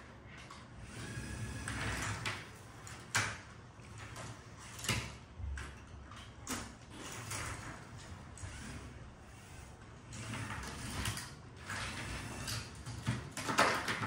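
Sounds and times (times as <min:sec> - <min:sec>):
faint motor whine: 0:00.0 - 0:13.4
plastic parts clacking: 0:10.3 - 0:14.0.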